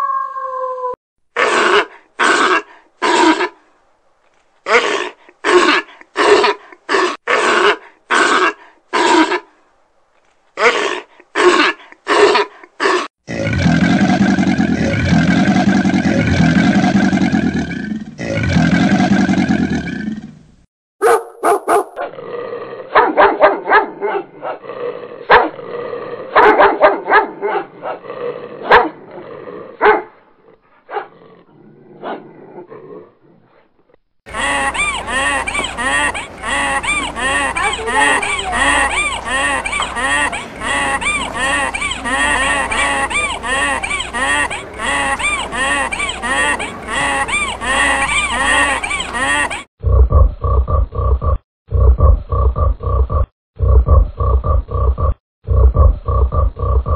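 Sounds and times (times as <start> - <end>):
dog barking: 21.0 - 22.1, 22.9 - 24.6, 25.3 - 25.6, 26.4 - 28.0, 28.6 - 29.0, 29.8 - 30.2, 30.9 - 31.1
donkey braying: 34.3 - 49.7.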